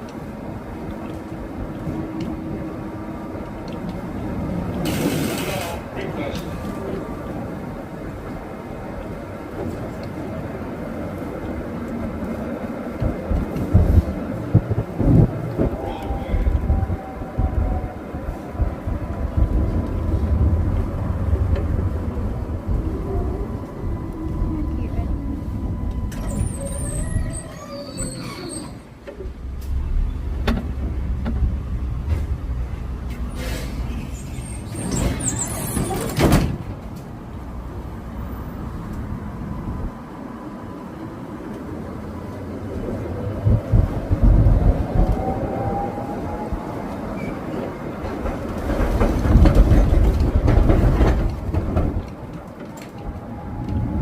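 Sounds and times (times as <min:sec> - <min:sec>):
streetcar rumbling on rails: 0:00.0 - 0:54.0
high squeal: 0:26.0 - 0:28.9, 0:33.3 - 0:36.1.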